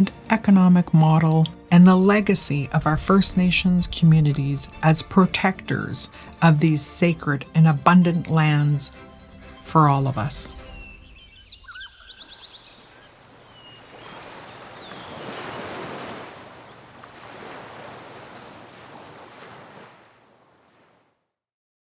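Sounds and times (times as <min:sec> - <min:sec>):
birds chirping: 0:00.0 - 0:17.0
ocean waves washing ashore: 0:00.0 - 0:21.2.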